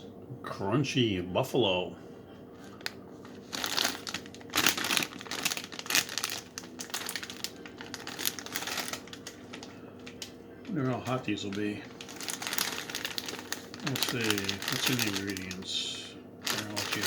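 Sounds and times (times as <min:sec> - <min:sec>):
snack bag crinkling: 0:02.6 - 0:15.6, 0:16.4 - 0:17.0.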